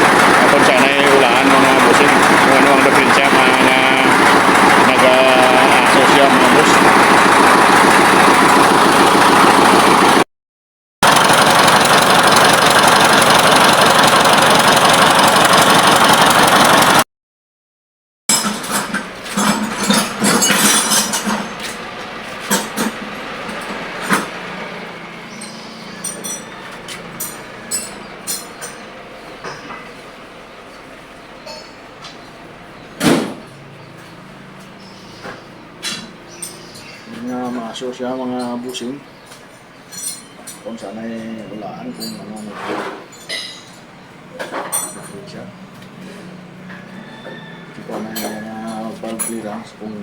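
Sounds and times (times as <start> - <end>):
tractor engine running: 0.0 - 10.2, 11.0 - 17.0, 18.4 - 37.2.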